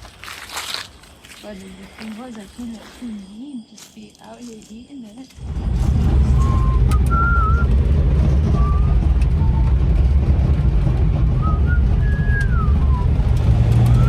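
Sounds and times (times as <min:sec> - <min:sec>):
car engine and road rumble: 0:05.4 - 0:14.0.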